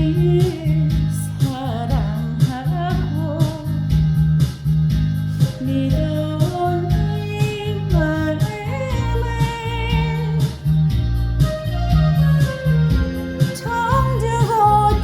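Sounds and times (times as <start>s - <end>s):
steady bass beat: 0.0s - 15.0s
sliding melody line: 5.4s - 15.0s.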